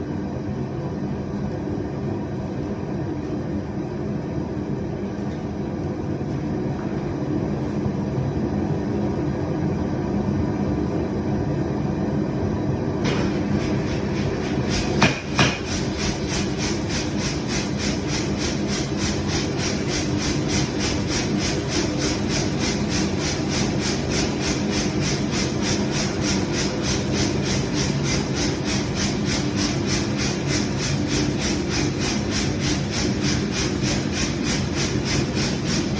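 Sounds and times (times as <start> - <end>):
shop machinery drone: 0.0 - 35.9
power hammer striking iron: 13.9 - 20.7.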